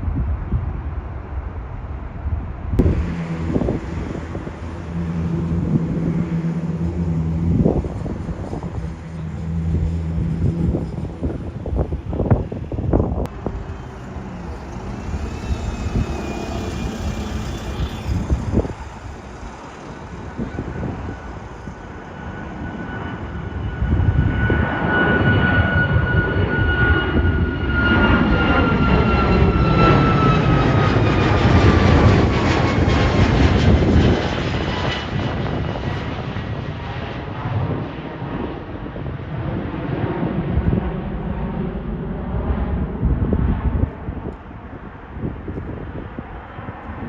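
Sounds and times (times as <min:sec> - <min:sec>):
jet airliner passing: 0:00.0 - 0:47.0
high engine whine: 0:00.1 - 0:47.0.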